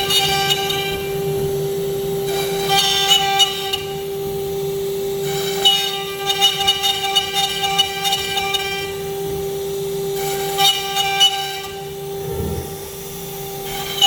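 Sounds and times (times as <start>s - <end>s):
rasping cutting noise: 11.3s - 13.3s.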